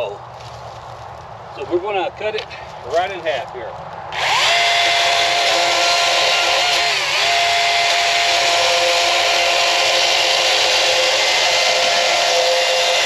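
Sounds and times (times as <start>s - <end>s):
power saw cutting wood: 4.1s - 13.0s.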